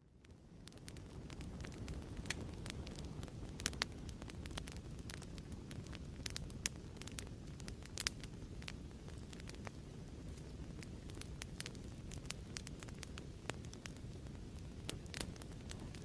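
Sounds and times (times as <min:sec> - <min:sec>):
fireplace crackling: 0:00.0 - 0:16.0
fire pops and snaps: 0:00.2 - 0:16.0.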